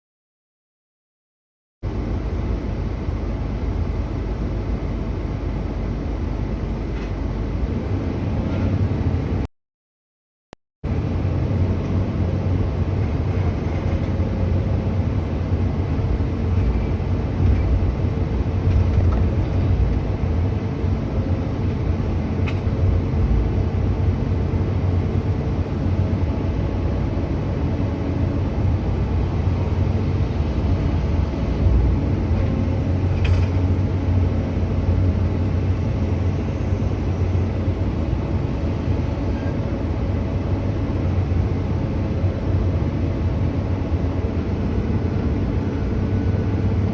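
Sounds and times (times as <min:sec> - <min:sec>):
diesel engine running: 0:10.9 - 0:46.9.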